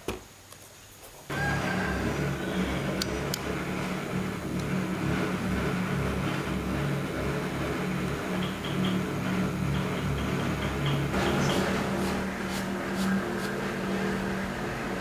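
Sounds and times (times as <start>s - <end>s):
small motor humming: 10.8s - 15.0s.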